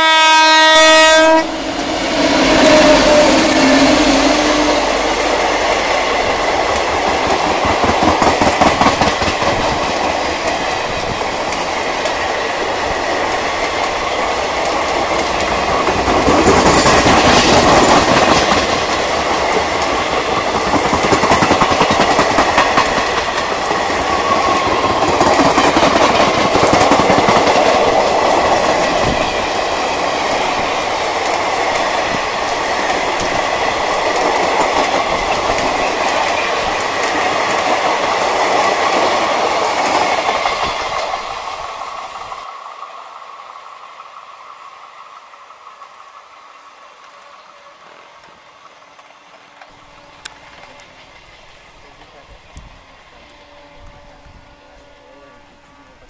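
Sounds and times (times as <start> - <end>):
train wheels rushing on rails: 0.0 - 55.7
wheels clacking over rail joints: 1.8 - 42.1.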